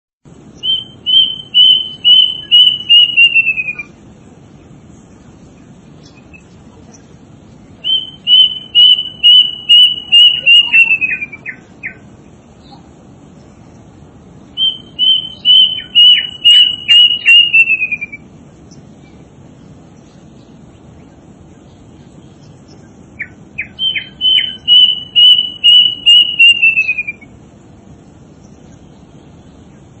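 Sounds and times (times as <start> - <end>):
bird whistling clear notes: 0.6 - 3.9, 7.8 - 12.0, 14.6 - 18.2, 23.2 - 27.3.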